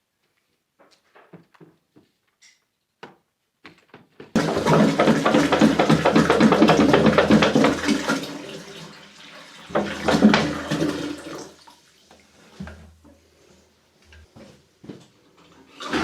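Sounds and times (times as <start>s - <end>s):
toilet flushing: 4.4s - 13.7s, 15.4s - 16.0s.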